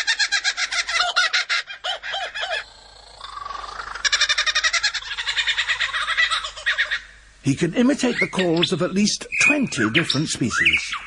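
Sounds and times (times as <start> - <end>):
lyrebird mimicking kookaburra laugh: 0.0 - 7.2.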